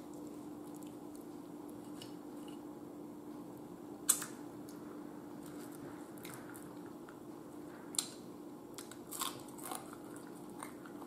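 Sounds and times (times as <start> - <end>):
person chewing food: 0.0 - 2.6, 7.9 - 11.0
faint steady hum: 0.0 - 11.0.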